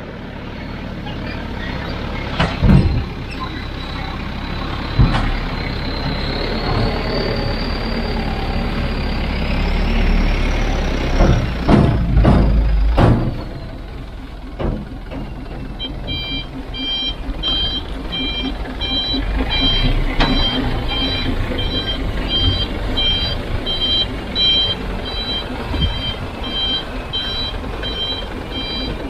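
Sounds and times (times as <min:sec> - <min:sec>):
diesel construction machine running: 0:00.0 - 0:29.0
sharp metal knocks and clanks: 0:04.9 - 0:07.2, 0:11.1 - 0:16.5.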